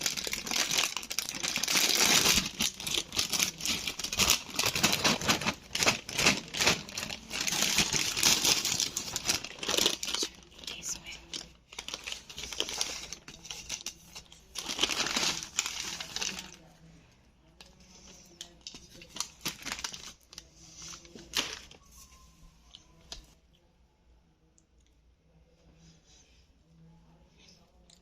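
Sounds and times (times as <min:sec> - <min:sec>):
plastic chip packet crinkling: 0:00.0 - 0:16.7, 0:18.3 - 0:21.8.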